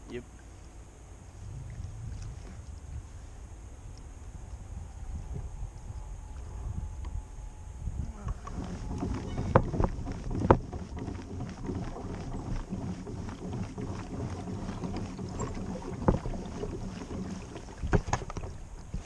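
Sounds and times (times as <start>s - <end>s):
wind buffeting microphone: 1.2s - 19.0s
sharp knocks: 8.5s - 19.0s.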